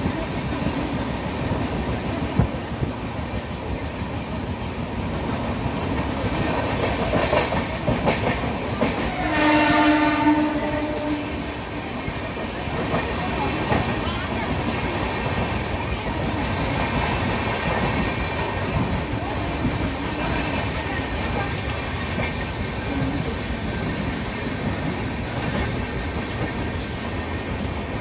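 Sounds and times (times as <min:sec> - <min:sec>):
train rumbling on rails: 0:00.0 - 0:28.0
train horn: 0:09.0 - 0:11.6.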